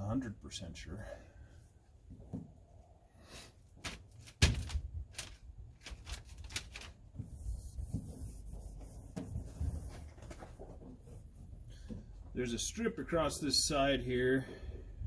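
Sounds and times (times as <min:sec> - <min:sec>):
mat rubbed and pressed by hand: 0:03.8 - 0:11.6.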